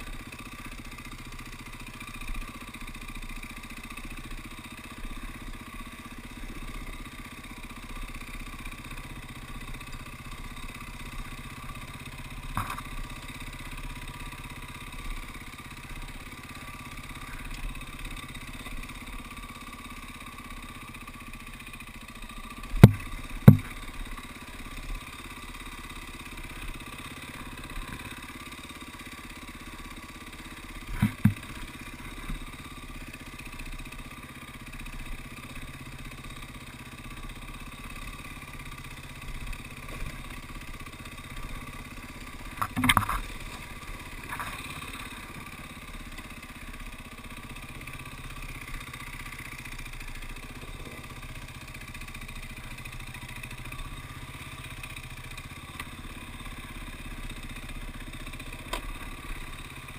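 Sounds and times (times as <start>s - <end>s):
dirt bike engine idling: 0.0s - 59.9s
loud engine knocks: 22.8s - 23.8s, 30.9s - 31.5s.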